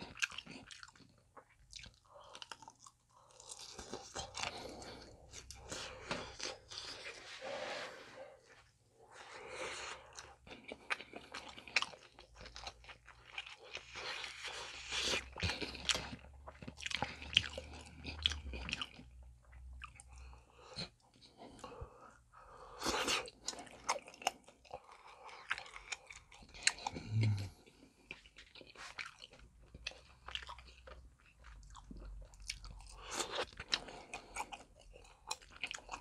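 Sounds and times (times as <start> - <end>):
biting and chewing: 22.8 - 36.0.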